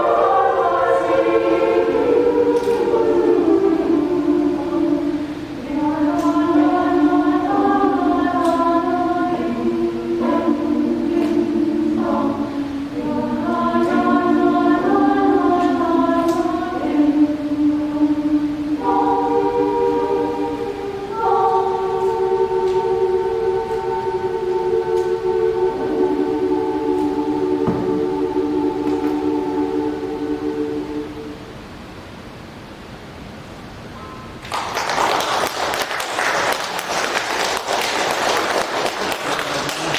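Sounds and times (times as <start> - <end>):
women's choir singing: 0.0 - 31.8, 34.7 - 39.9
audience applauding: 34.4 - 39.9.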